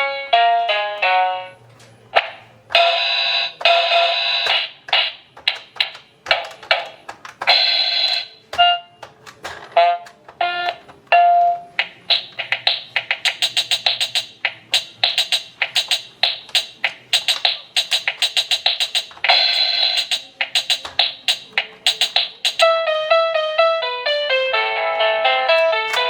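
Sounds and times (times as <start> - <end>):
electronic drum beat: 2.2 - 8.7, 11.8 - 22.8
toy keyboard buzzy notes and beeps: 2.7 - 4.7, 5.4 - 9.1, 9.8 - 22.9.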